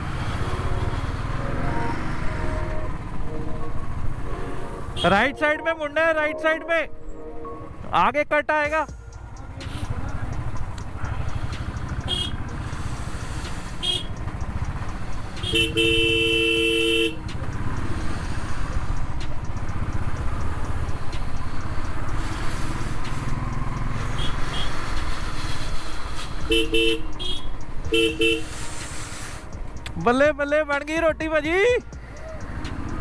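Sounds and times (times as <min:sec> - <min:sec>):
vehicle horns honking: 0:00.0 - 0:05.5, 0:11.2 - 0:18.0, 0:23.1 - 0:29.4
motorcycle and road rumble: 0:00.0 - 0:33.0.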